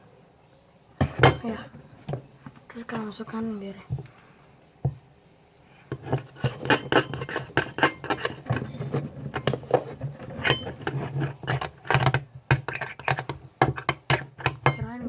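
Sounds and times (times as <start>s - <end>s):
spoon scraping a bowl: 5.9s - 14.8s.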